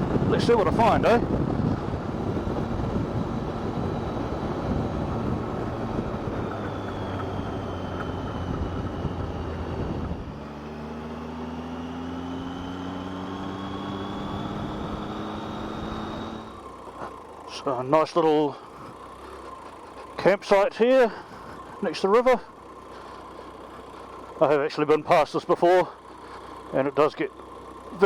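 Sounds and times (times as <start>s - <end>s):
wind rush: 0.0s - 10.4s
motorcycle engine: 0.0s - 28.0s.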